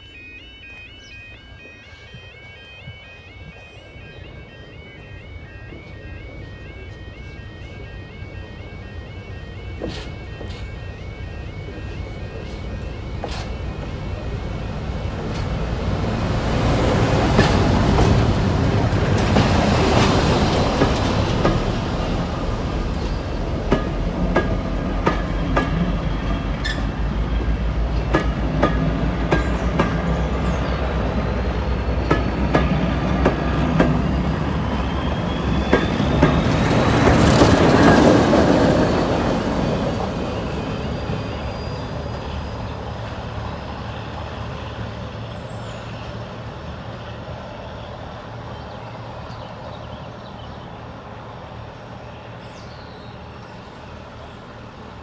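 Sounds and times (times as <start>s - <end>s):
diesel locomotive engine: 0.0s - 55.0s
train wheels clicking over rail joints: 9.6s - 15.7s, 16.8s - 41.4s.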